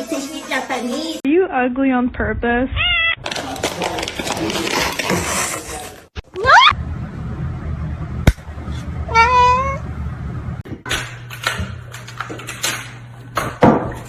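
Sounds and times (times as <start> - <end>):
cat meowing: 9.1 - 9.8.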